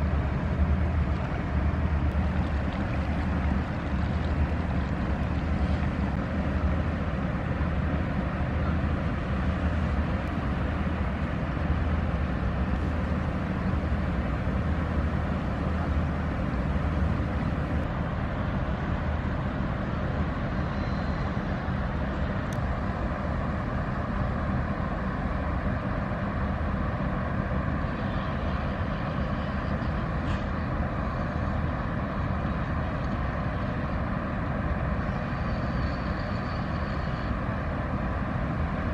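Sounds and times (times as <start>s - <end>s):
ship diesel engine droning: 0.0s - 38.9s.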